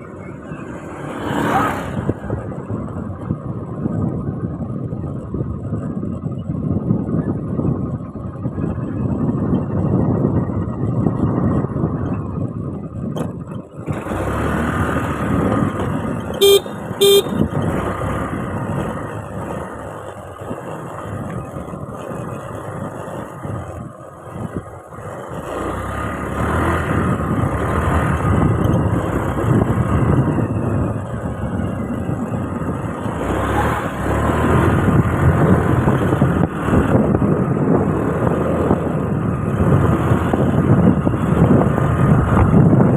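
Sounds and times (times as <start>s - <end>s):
motorcycle engine running: 0.0s - 42.9s
wind rushing over microphone: 0.0s - 42.9s
vehicle horn beeps: 16.4s - 17.5s.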